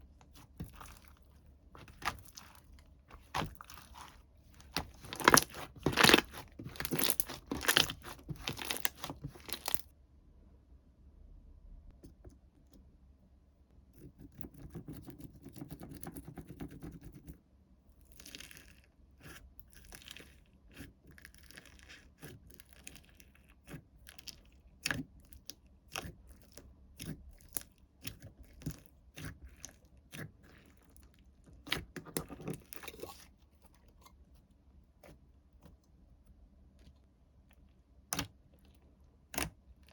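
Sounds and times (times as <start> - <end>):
slime and packaging crackling: 0.2 - 9.9.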